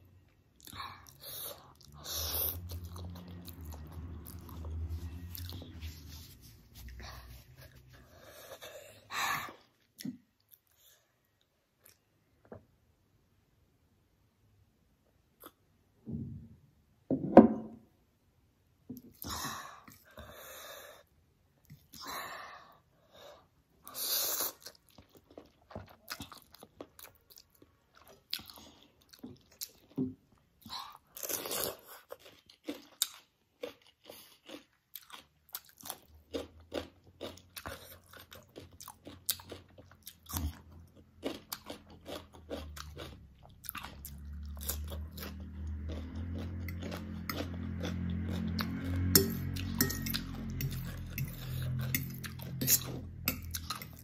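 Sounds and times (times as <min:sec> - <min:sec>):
low steady hum: 0:00.0 - 0:09.8, 0:40.3 - 0:54.0
wet chewing and mouth smacks: 0:30.6 - 0:54.0.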